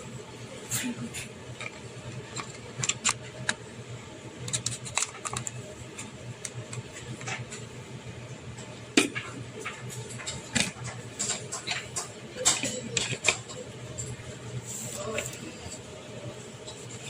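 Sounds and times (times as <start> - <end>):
steady low hum: 0.0 - 17.0
objects clicking and tapping: 1.6 - 3.6, 4.4 - 7.7, 9.0 - 14.2.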